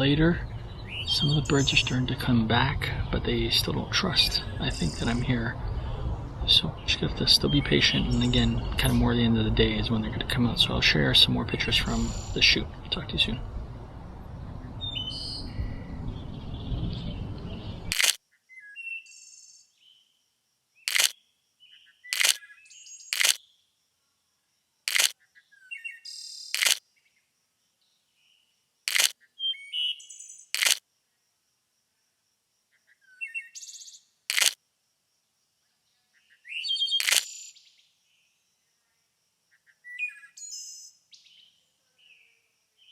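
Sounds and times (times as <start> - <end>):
small birds chirping: 0.0 - 20.1, 20.8 - 23.7, 24.9 - 30.8, 35.8 - 38.9, 39.5 - 42.9
sharp single clicks: 17.9 - 18.2, 20.9 - 21.2, 22.2 - 22.4, 23.2 - 23.4, 24.9 - 25.2, 26.6 - 26.8, 28.9 - 29.2, 30.6 - 30.8, 34.3 - 34.6, 37.0 - 37.4.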